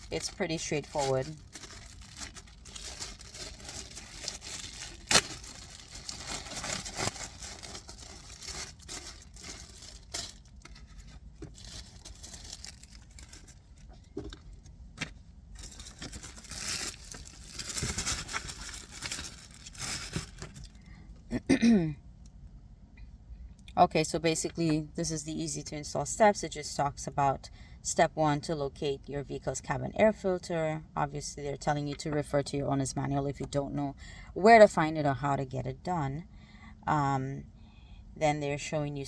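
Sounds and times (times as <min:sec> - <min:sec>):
packaging crinkling and rustling: 0:00.0 - 0:20.8.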